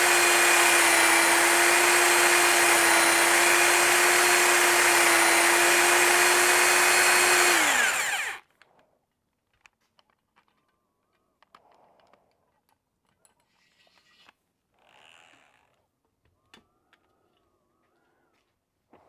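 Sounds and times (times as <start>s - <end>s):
power drill whining: 0.0s - 8.4s.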